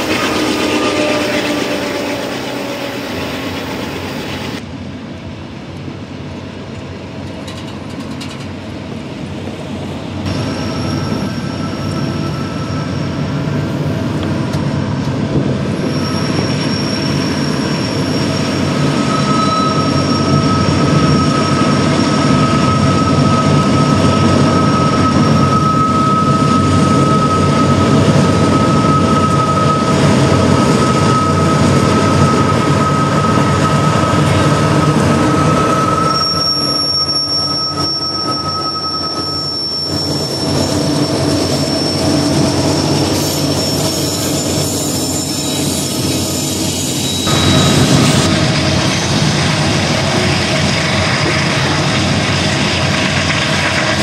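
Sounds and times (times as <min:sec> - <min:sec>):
high-pitched whine: 0:00.0 - 0:04.6, 0:15.8 - 0:51.7
diesel locomotive rumble: 0:00.0 - 0:54.0.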